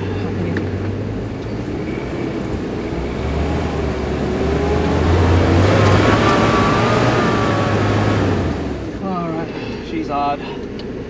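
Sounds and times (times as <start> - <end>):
engine pulling under load: 0.0 - 9.0.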